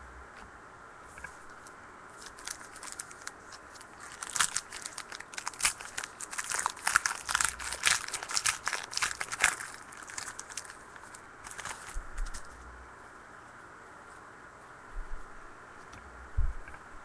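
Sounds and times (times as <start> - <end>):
plastic wrapper crinkling: 1.5 - 12.6.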